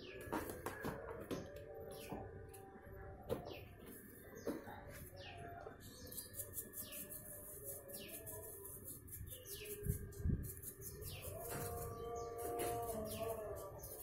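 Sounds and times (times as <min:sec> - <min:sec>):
brush scrubbing in metal tin: 0:06.0 - 0:14.0.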